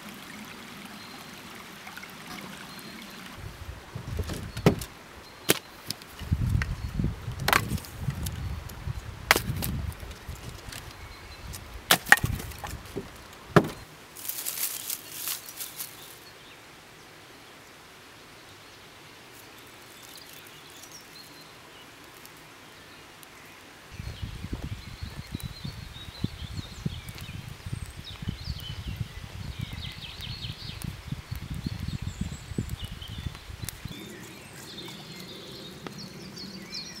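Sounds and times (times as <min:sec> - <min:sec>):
firewood cracking and knocking: 0:04.0 - 0:06.7, 0:07.3 - 0:08.5, 0:09.3 - 0:11.0, 0:11.9 - 0:15.9.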